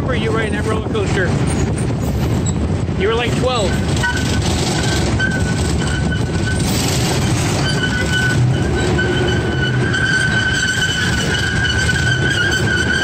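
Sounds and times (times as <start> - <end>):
miniature train rumble: 0.0 - 13.0
high-pitched squeal: 3.5 - 13.0.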